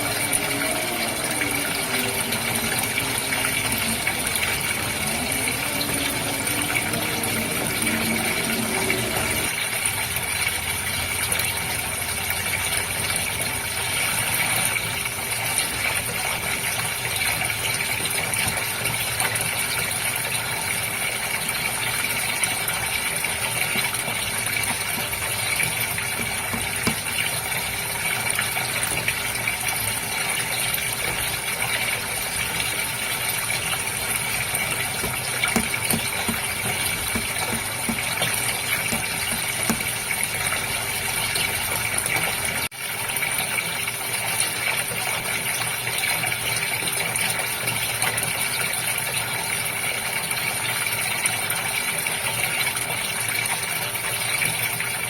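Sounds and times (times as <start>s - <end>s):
faint steady hum: 0.0s - 10.0s
water gushing and splashing: 0.0s - 55.0s.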